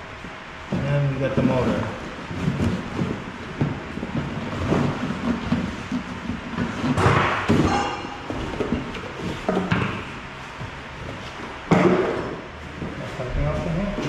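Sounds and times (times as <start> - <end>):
cardboard rustling and knocks: 0.7 - 10.0.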